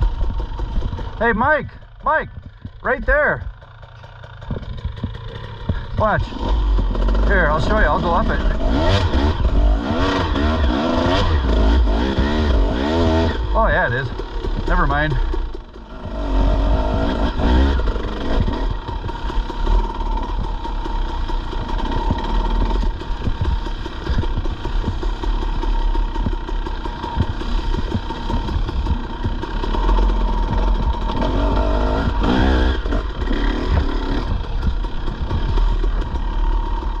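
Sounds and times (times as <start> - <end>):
dirt bike engine revving: 0.0 - 37.0
knocks and clatter from bumps: 3.4 - 6.3.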